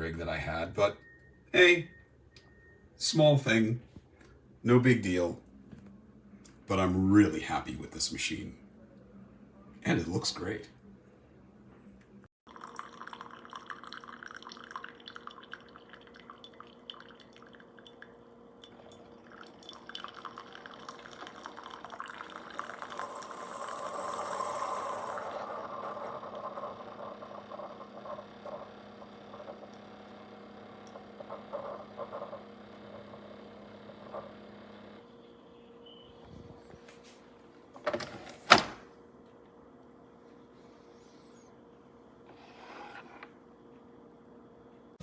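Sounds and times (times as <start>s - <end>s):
coffee dripping into a cup: 12.5s - 27.9s
coffee maker humming: 12.5s - 36.8s, 37.7s - 38.9s, 40.2s - 45.0s.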